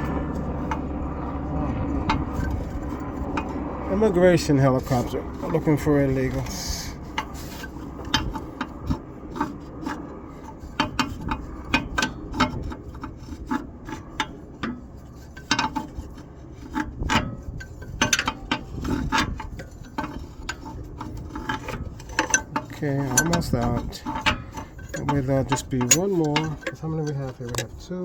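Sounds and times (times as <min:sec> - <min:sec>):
metal scraping and rubbing: 0:00.0 - 0:28.0
wrench clicking: 0:24.2 - 0:26.8.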